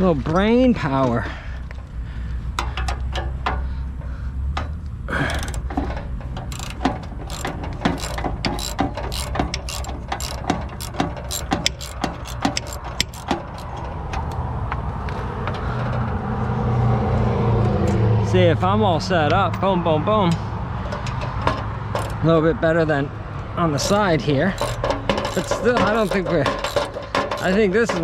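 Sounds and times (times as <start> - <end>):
ratchet wrench clicking: 5.2 - 5.7, 6.4 - 14.3, 21.9 - 22.3, 23.8 - 28.0.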